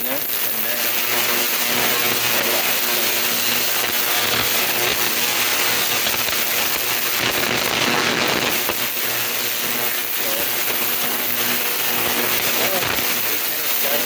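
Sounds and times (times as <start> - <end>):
ultrasonic cleaner hissing: 0.0 - 14.0.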